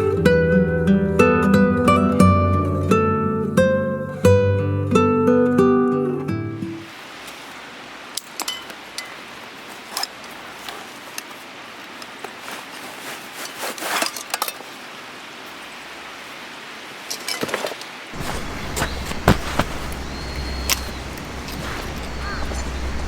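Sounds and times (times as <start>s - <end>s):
faint steady hiss: 18.2s - 23.0s.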